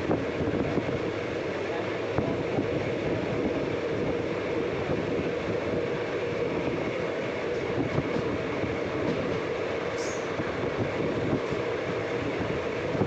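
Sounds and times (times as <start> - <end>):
passenger train running on track: 0.0 - 13.0.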